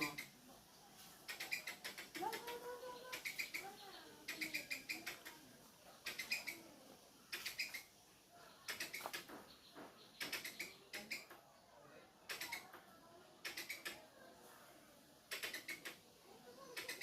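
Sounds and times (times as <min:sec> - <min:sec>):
squirrel chirping: 0:00.0 - 0:00.4, 0:01.2 - 0:05.4, 0:06.0 - 0:08.0, 0:08.6 - 0:11.4, 0:12.3 - 0:12.8, 0:13.4 - 0:14.0, 0:15.3 - 0:17.0.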